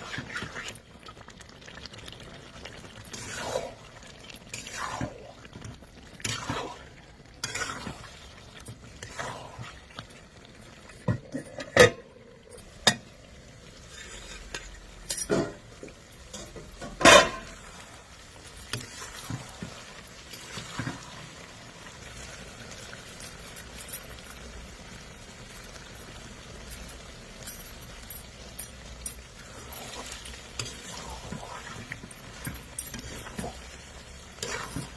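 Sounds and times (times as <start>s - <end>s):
food sizzling: 0.0s - 34.9s
metal spoon scraping pan: 7.4s - 8.1s, 13.8s - 15.6s, 28.8s - 34.9s.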